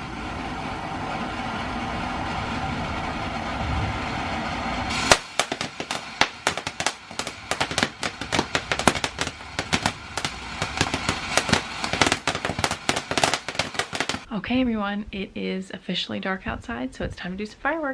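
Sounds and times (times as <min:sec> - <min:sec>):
steady rumbling noise: 0:00.0 - 0:15.4
firecracker pops and crackles: 0:04.9 - 0:14.3.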